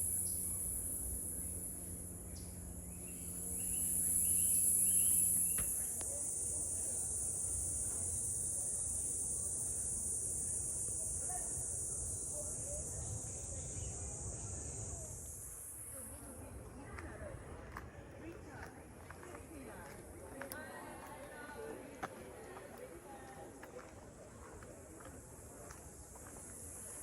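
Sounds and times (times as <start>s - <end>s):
high-pitched insect chorus: 0.0s - 16.6s, 24.6s - 27.0s.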